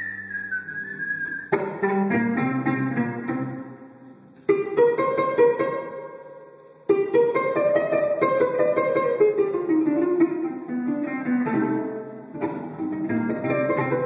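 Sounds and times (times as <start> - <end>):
plucked strings playing fast run: 6.9 - 14.0.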